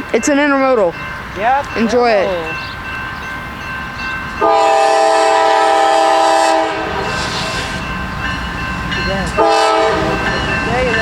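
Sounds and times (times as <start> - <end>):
train rumble: 0.0 - 11.0
locomotive air horn blast: 4.4 - 7.8, 9.4 - 10.2.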